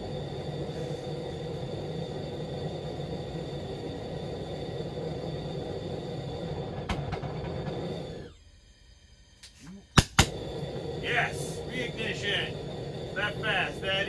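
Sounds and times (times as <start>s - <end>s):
combustion chamber low rumble: 0.0s - 8.3s, 10.2s - 14.0s
faint steady high tones: 7.8s - 14.0s.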